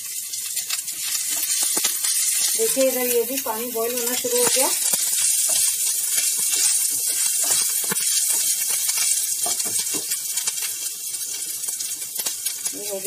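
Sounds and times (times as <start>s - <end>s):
onions sizzling in hot oil: 0.0s - 13.0s
spatula scraping and tapping pan: 3.9s - 10.6s.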